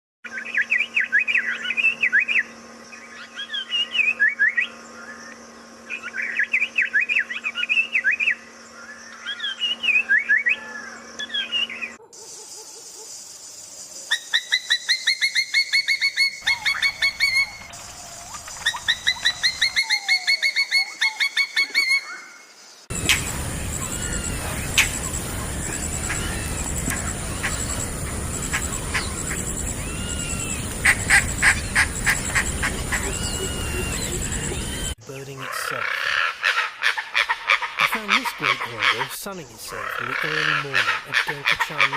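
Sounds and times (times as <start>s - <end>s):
bird chirping and whistling: 9.3s - 10.6s, 14.2s - 22.0s, 22.9s - 35.0s
bird whistling fast runs: 14.2s - 22.1s, 22.9s - 35.0s.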